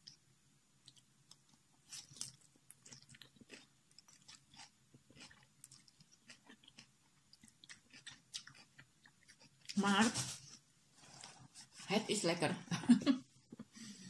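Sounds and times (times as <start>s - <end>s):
person chewing noodles: 0.8s - 9.8s.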